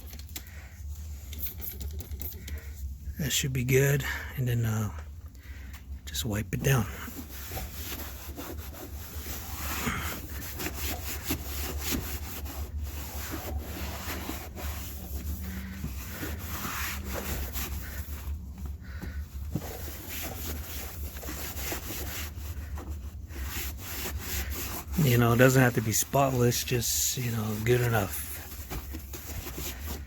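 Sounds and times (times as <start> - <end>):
steady low hum: 0.1 - 30.0
cloth wiping a floorboard: 7.1 - 30.0.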